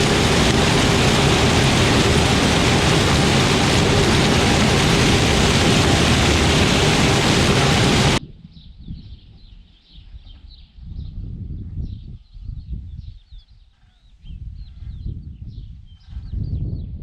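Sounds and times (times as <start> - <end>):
loud rushing noise: 0.0 - 8.2
low rumble: 0.0 - 8.2.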